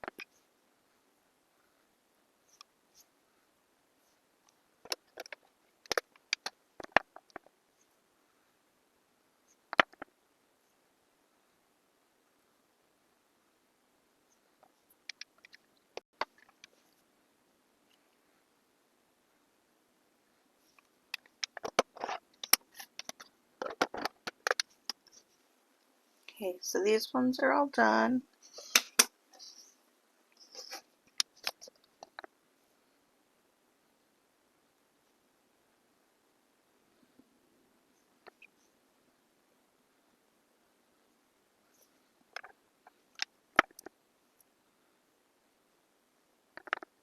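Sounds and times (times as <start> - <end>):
hard objects clicking on work surface: 46.6 - 46.9.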